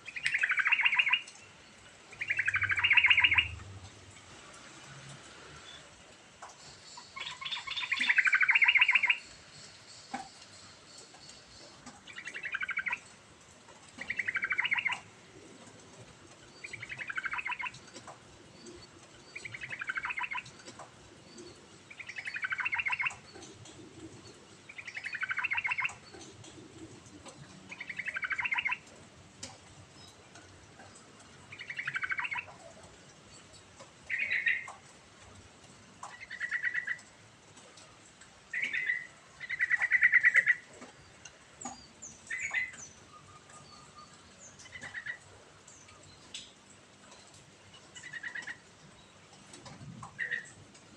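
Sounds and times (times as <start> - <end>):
bulbul singing: 0.1 - 1.5, 2.1 - 3.6, 7.0 - 9.3, 14.0 - 15.1, 16.6 - 17.9, 18.6 - 20.6, 21.3 - 23.8, 24.7 - 26.3, 27.3 - 28.8.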